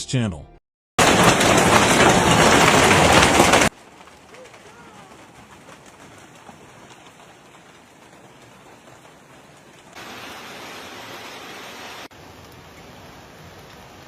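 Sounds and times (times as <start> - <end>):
heavy rain hissing: 8.0 - 14.0.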